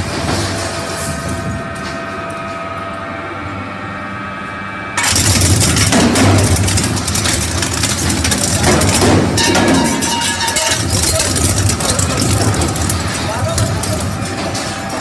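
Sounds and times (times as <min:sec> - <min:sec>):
steady humming tone: 0:00.0 - 0:15.0
shredder grinding and crunching: 0:05.0 - 0:15.0.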